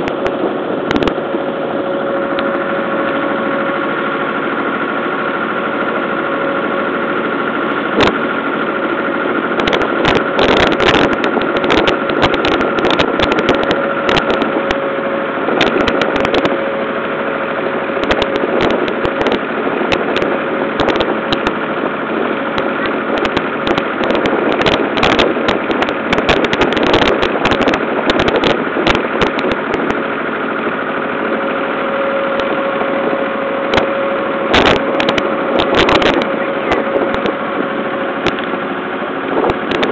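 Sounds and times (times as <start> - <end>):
boat motor running: 0.0 - 39.9
sharp crackling knocks: 39.4 - 39.9.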